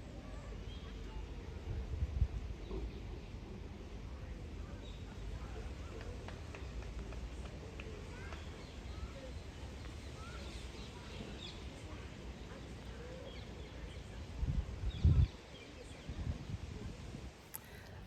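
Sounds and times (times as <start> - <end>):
wind rumble on microphone: 1.4 - 3.1, 14.1 - 17.4.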